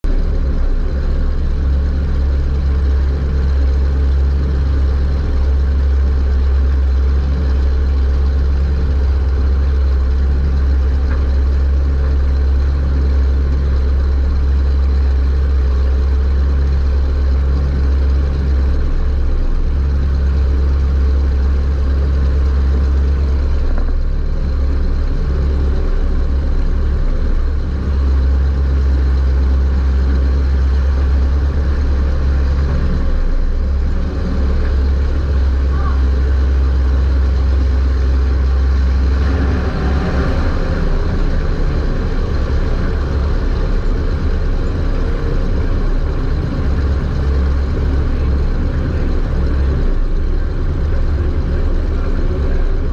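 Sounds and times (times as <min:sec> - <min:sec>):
race car engine droning: 0:00.0 - 0:52.9.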